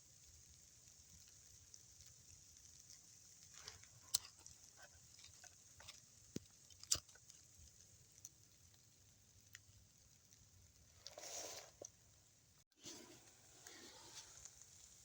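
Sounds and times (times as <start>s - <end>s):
small clicks and ticks: 0.0s - 12.0s.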